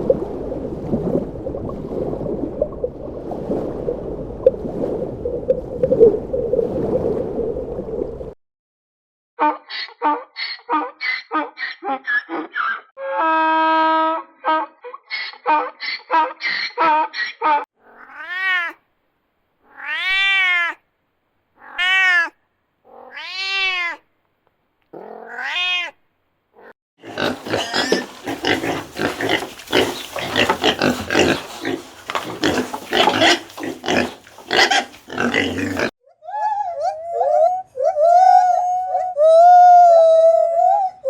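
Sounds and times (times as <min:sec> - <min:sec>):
cat meowing: 0:19.7 - 0:20.8, 0:21.6 - 0:24.0, 0:25.2 - 0:26.0
jumble of short animal sounds: 0:27.0 - 0:35.9.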